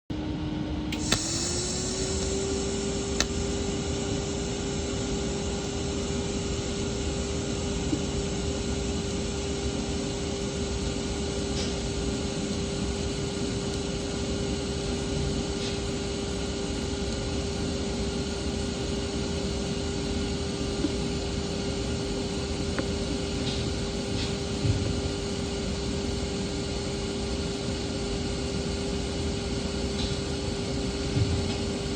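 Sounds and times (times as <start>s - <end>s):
welding arc hissing: 1.0s - 9.0s.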